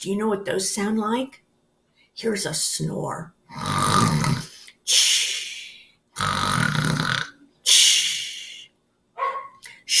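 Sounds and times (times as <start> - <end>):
woman imitating snoring: 3.5 - 4.6, 6.2 - 7.4.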